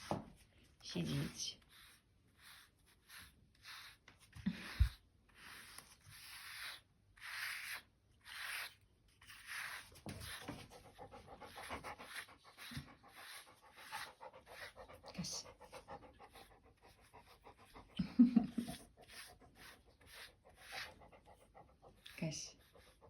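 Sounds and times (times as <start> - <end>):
dog breathing and panting: 9.8 - 23.0.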